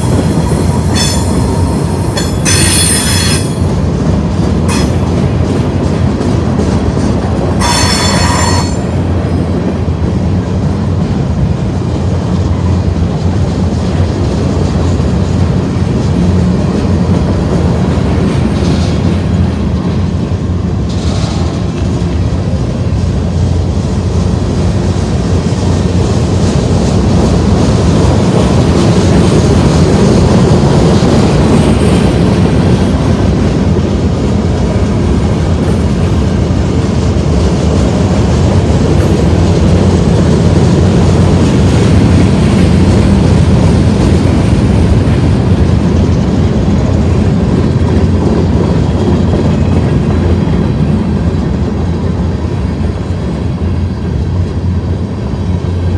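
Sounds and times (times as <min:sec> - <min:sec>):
high wheel squeal: 0:00.0 - 0:03.7, 0:07.6 - 0:09.0
wheels clattering over rail joints: 0:00.0 - 0:09.5
freight train rumbling past: 0:00.0 - 0:55.9.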